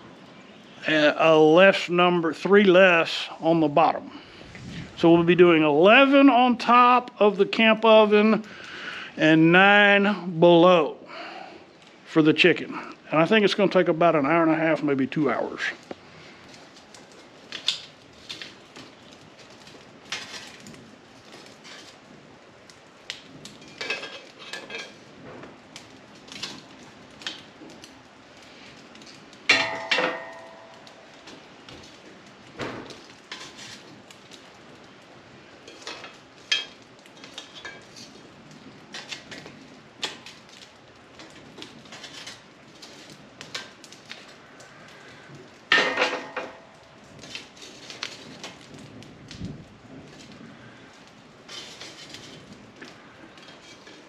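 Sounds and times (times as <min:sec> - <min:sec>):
metal pans clinking and knocking: 0:23.8 - 0:25.0, 0:29.5 - 0:30.8, 0:45.7 - 0:46.7
ringing metal clang: 0:29.5 - 0:30.8.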